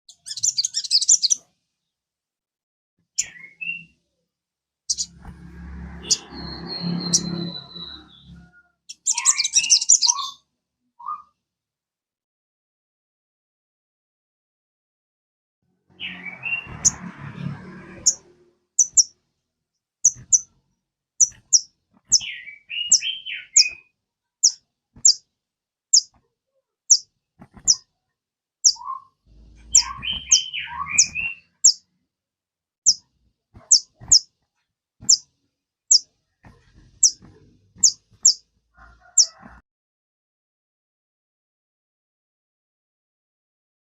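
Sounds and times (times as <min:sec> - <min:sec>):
high tsit bird calls: 0:00.1 - 0:01.4, 0:04.9 - 0:05.2, 0:06.0 - 0:10.4, 0:18.8 - 0:19.1, 0:21.2 - 0:23.8, 0:27.6 - 0:27.8, 0:28.6 - 0:31.8, 0:33.6 - 0:34.3, 0:37.0 - 0:37.2, 0:37.8 - 0:38.4
bird twittering warbling phrase: 0:04.9 - 0:05.1, 0:08.9 - 0:10.4, 0:29.7 - 0:31.8.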